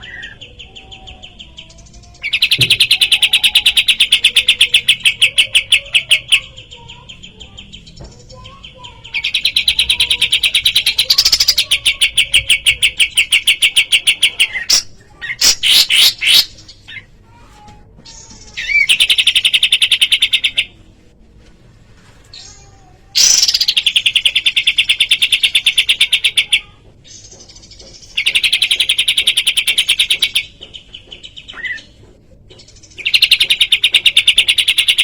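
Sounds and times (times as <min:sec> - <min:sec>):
bird trilling: 0:00.0 - 0:17.1, 0:23.2 - 0:30.6.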